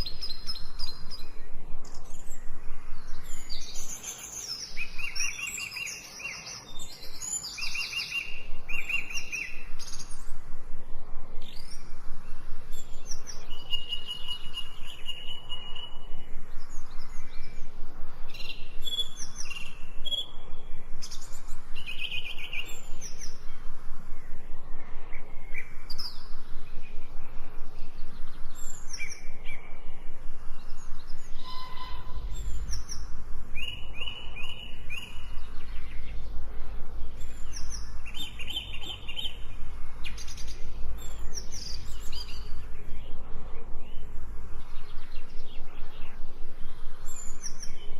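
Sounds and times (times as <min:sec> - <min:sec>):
songbirds chirping and trilling: 0:00.0 - 0:47.9
steady background hiss: 0:00.0 - 0:47.9.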